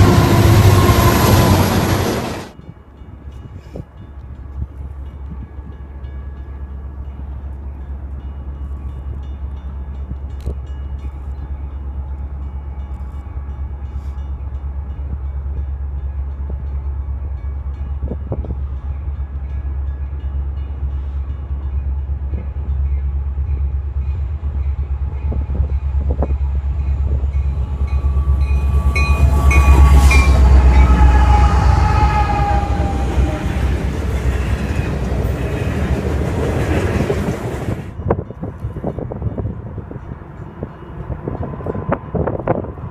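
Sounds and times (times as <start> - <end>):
train rumbling past: 0.0 - 42.9
locomotive horn: 27.1 - 36.0.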